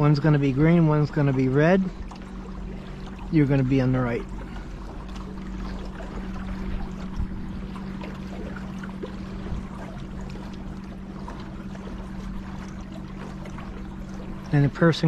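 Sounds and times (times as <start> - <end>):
steady low hum: 0.0 - 15.0
water splashing around kayak: 0.0 - 15.0.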